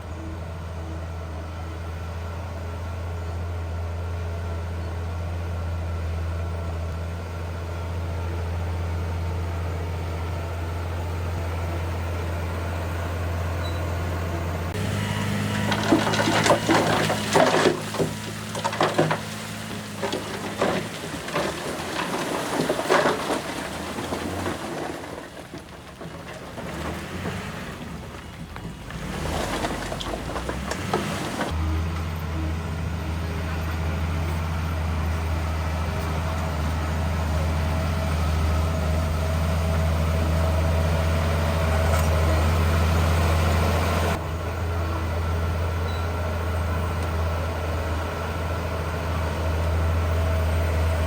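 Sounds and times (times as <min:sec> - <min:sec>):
heavy diesel engine running: 0:00.0 - 0:51.0
loose stone clattering: 0:14.8 - 0:31.6.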